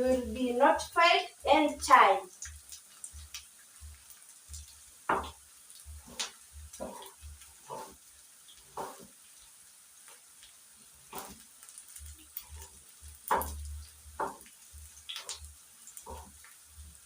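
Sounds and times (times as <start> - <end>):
onions frying in oil: 0.0 - 17.0
spoon scraping against pan: 6.0 - 9.2.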